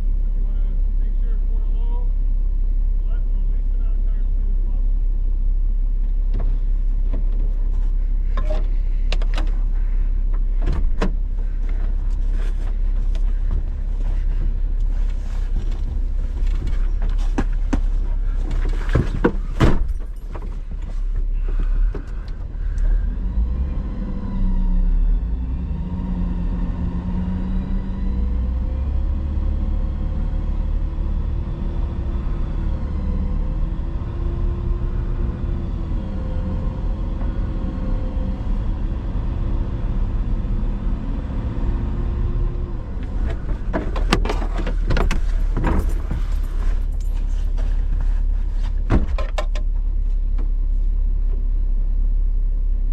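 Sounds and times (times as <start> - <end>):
vehicle engine rumbling: 0.0 - 52.9
sharp knocks and clunks: 15.6 - 21.0, 43.0 - 46.8, 48.8 - 49.7.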